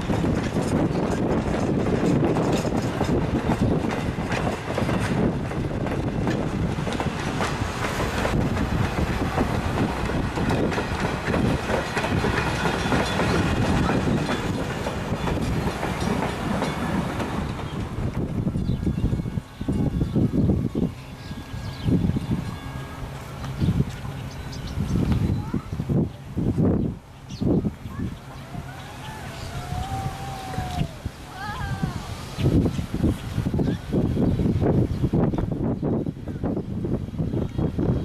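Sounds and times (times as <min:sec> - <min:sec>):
wheels clicking over rail joints: 0:00.0 - 0:20.3
steam train rolling past: 0:00.0 - 0:38.0.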